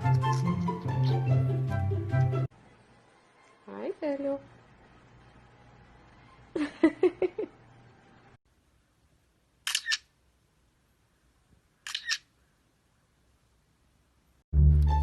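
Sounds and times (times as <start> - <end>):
camera shutter clicks: 9.7 - 10.1, 11.8 - 12.3.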